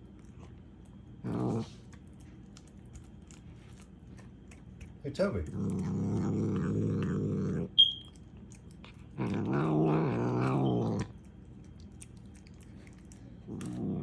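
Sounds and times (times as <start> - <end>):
cat growling: 1.2 - 1.9, 5.4 - 7.8, 8.9 - 11.2, 13.2 - 14.0.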